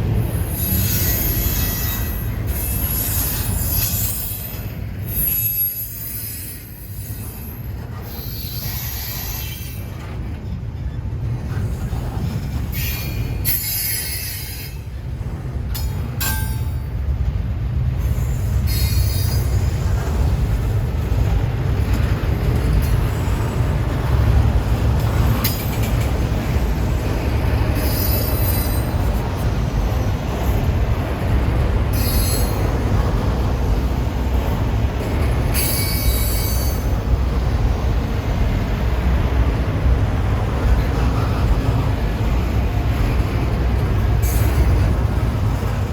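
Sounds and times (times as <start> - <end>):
train cars rumbling on rails: 0.0 - 45.9
high wheel squeal: 0.4 - 10.0, 12.7 - 14.8, 27.8 - 29.1, 31.9 - 32.7, 35.5 - 36.9.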